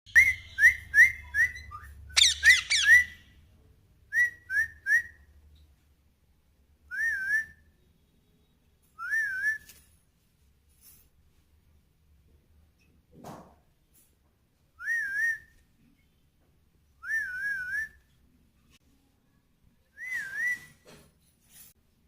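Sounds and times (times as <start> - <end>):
parrot whistling: 0.1 - 3.2.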